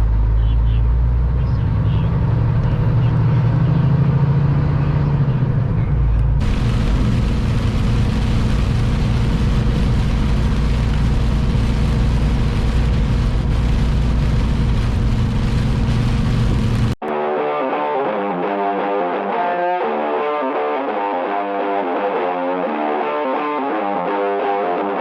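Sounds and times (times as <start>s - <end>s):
road noise: 0.0s - 17.0s
truck engine humming: 5.3s - 17.0s
electric guitar music: 6.2s - 25.0s.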